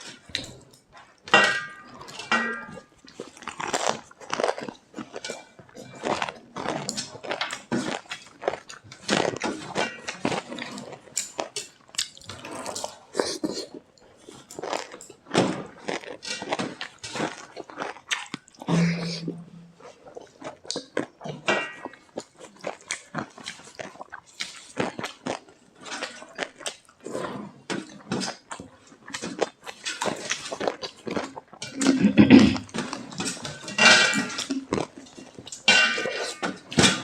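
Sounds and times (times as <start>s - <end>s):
chewing and crunching food: 0.0s - 37.0s.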